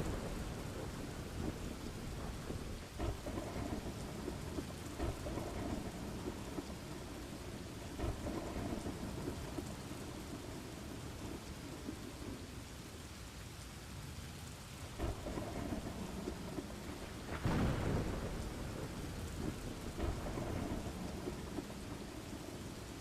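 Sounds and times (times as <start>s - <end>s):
sharp thunder crack: 0.0s - 7.0s, 8.0s - 9.6s, 15.0s - 22.1s
loud thunderclap: 0.0s - 9.8s, 15.0s - 22.3s
low rolling thunder: 0.0s - 12.6s, 14.9s - 23.0s
steady rain: 0.0s - 23.0s.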